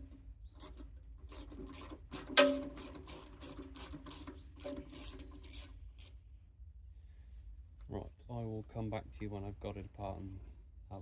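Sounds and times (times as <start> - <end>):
socket ratchet clicking: 0.6 - 6.1.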